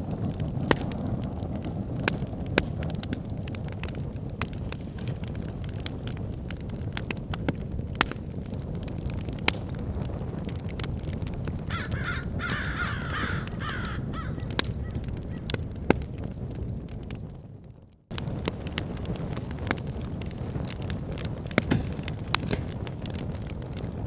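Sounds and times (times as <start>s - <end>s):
bonfire crackling and popping: 0.0s - 24.0s
crows cawing: 11.7s - 15.6s.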